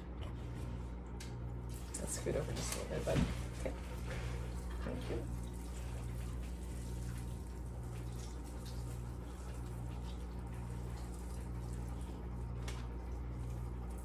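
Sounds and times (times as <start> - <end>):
low electrical hum: 0.0 - 14.0
wet squishing of chicken by hand: 3.4 - 14.0.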